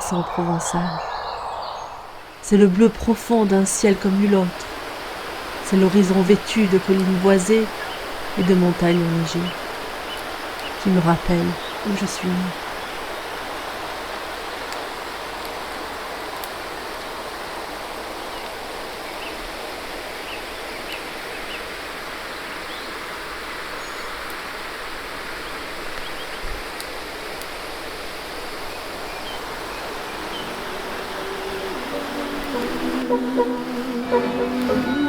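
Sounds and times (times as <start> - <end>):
faint high chirps: 0.0 - 2.5
stream water rushing: 0.0 - 26.0, 26.6 - 35.0.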